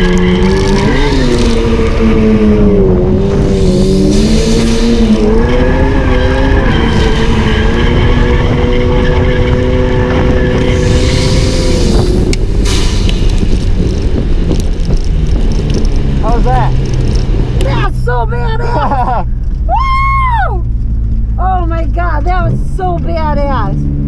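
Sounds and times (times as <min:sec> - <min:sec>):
rushing noise: 0:00.0 - 0:17.7
car engine at high revs: 0:00.0 - 0:19.8.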